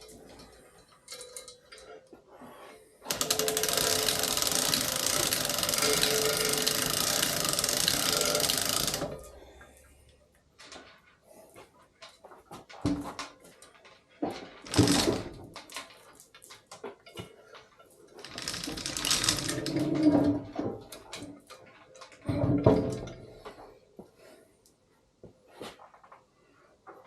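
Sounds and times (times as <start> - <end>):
long scraping noise: 2.4 - 9.1
objects knocking and clattering: 12.0 - 23.7.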